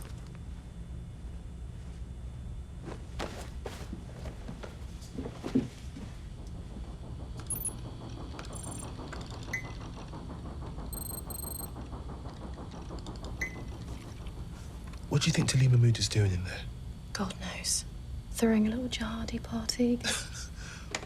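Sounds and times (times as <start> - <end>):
low electronic hum: 0.0 - 9.8, 11.0 - 12.2
short high electronic beeps: 11.0 - 11.7.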